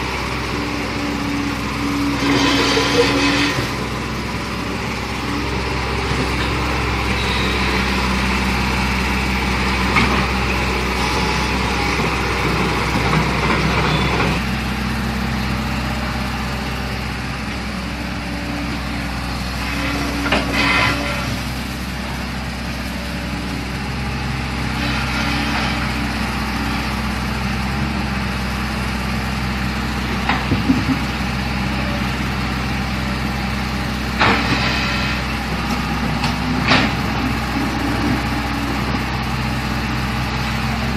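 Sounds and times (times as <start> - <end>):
excavator diesel engine running: 0.0 - 40.9
loud scraping: 2.1 - 3.9, 19.6 - 21.5.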